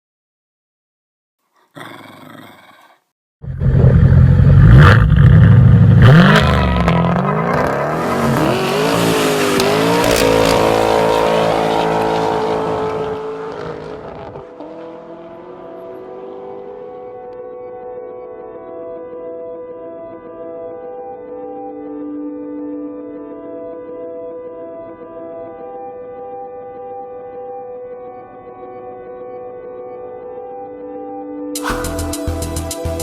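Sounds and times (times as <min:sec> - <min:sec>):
car engine revving: 0:03.5 - 0:17.4, 0:31.6 - 0:33.0.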